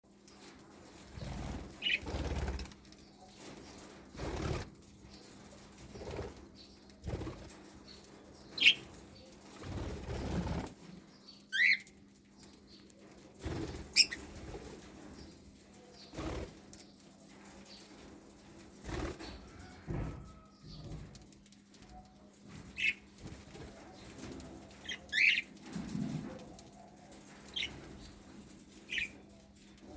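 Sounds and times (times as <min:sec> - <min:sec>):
budgerigar wings fluttering: 0:01.1 - 0:02.8.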